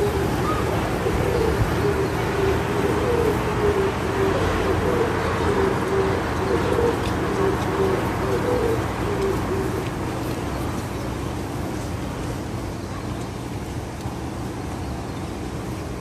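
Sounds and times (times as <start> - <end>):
dove cooing: 0.0 - 10.2.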